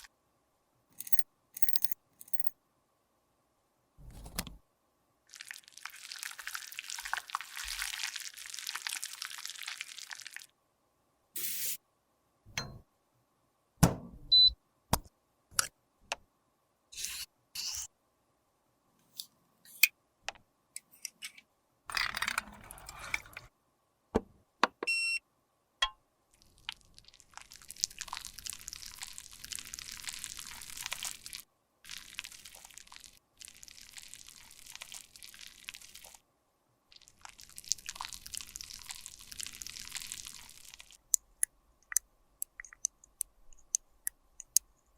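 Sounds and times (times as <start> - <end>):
clicks and taps of containers: 41.1 - 44.7.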